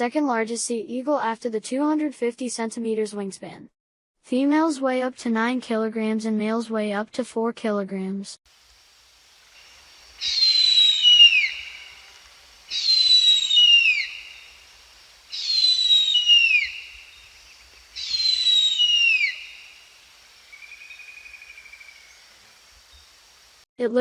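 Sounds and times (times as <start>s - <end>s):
faint bird trill: 9.5s - 23.2s
eagle screaming: 10.1s - 22.2s.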